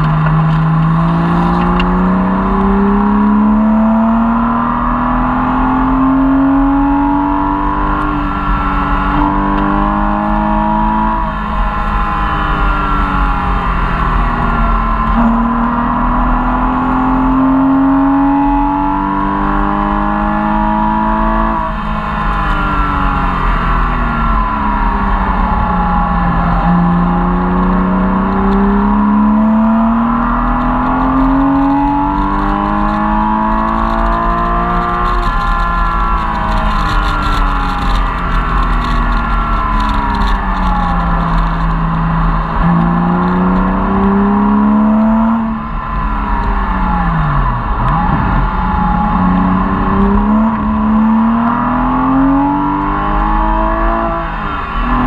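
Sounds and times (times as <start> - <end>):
car engine revving: 0.0 - 55.0
road and tyre noise: 0.0 - 55.0.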